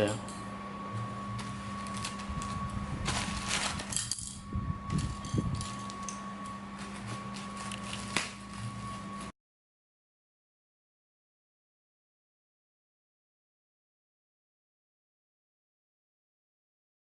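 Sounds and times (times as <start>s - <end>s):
steady background hum: 0.0s - 9.3s
cardboard box rustling: 3.0s - 3.9s.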